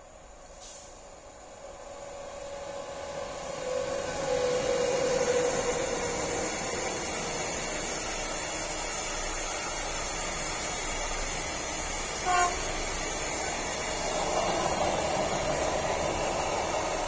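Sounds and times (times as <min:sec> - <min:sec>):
train horn toot: 0:12.2 - 0:12.8.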